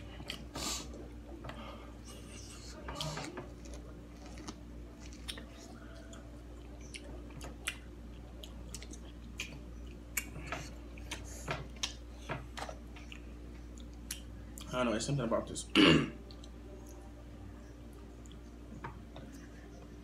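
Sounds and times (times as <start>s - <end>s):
chewing crunchy food: 2.0s - 14.7s.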